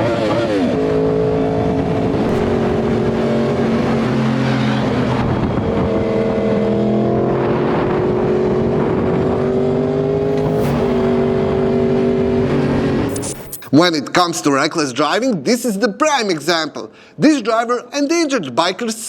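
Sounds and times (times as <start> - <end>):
wind and road noise: 0.0 - 13.6.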